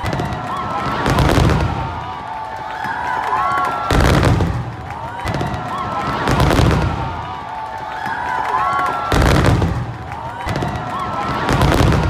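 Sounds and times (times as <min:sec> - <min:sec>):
fireworks booming and crackling: 0:00.0 - 0:02.4, 0:03.6 - 0:07.5, 0:08.8 - 0:12.0.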